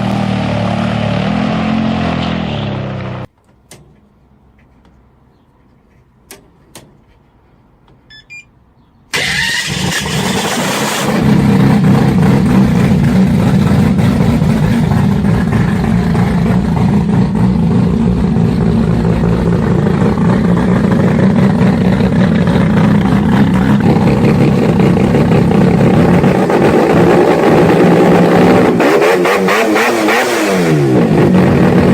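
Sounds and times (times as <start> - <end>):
engine starting and running: 9.1 - 31.9.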